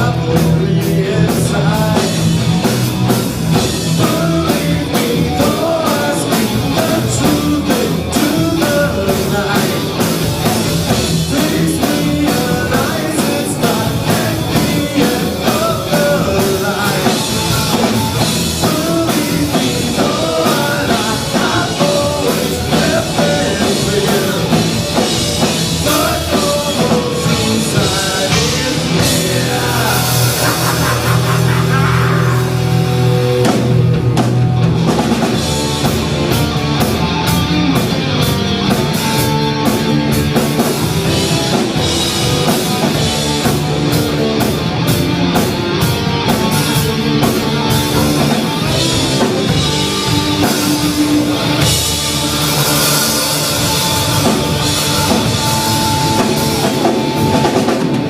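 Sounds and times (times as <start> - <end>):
person singing: 0.0 - 2.8, 3.8 - 10.3, 10.9 - 33.2
drum kit beat: 0.0 - 58.0
guitars: 0.0 - 58.0.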